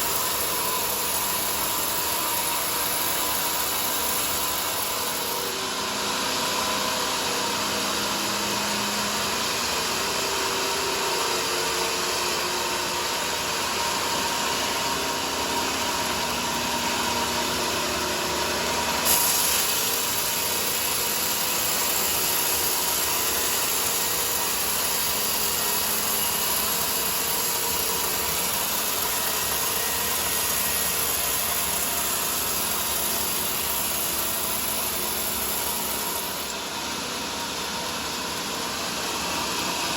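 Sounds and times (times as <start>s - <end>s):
band saw cutting log: 0.0s - 10.2s, 15.1s - 36.6s.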